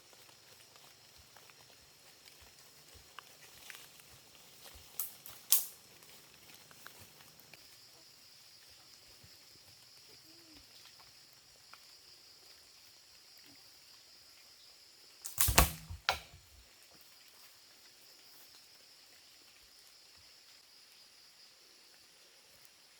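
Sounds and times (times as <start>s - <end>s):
sharp knocks: 15.3s - 16.4s.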